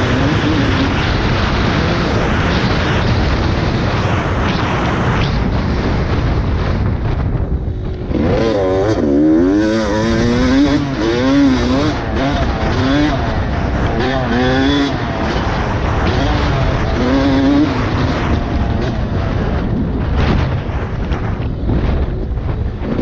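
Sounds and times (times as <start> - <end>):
rushing noise: 0.9 - 22.7
dirt bike engine revving: 8.0 - 18.9.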